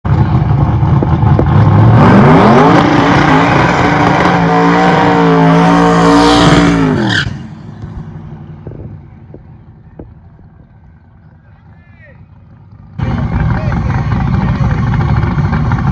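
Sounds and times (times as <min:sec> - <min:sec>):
race car engine at full throttle: 0:00.0 - 0:15.9.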